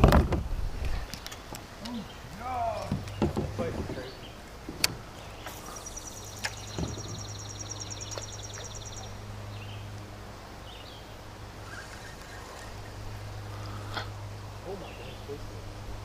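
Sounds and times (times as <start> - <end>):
short knocks: 2.8 - 4.1.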